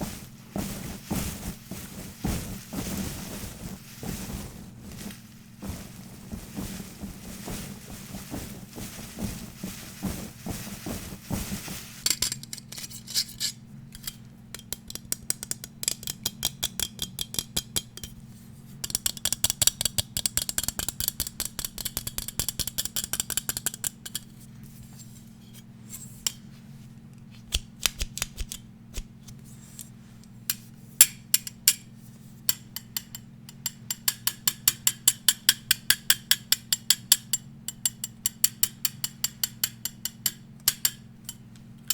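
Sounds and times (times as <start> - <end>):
scratchy rubbing: 0.0 - 12.0.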